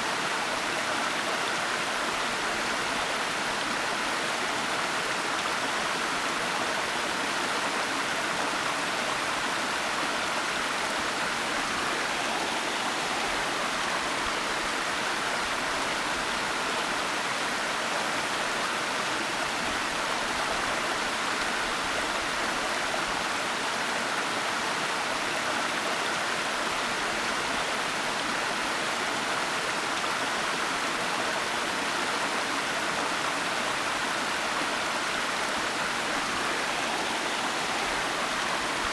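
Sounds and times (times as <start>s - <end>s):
waterfall rushing: 11.8s - 14.7s, 33.6s - 38.9s.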